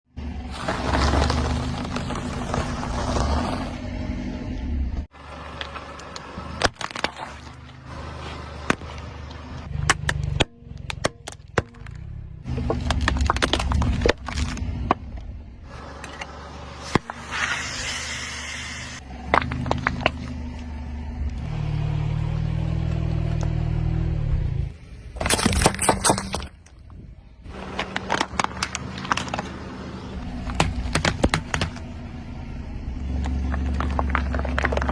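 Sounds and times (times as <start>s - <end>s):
car engine running: 0.1s - 25.7s, 26.8s - 34.9s
tyre crushing objects: 0.4s - 3.8s, 5.6s - 15.2s, 25.2s - 26.6s, 27.5s - 31.9s, 33.1s - 34.9s.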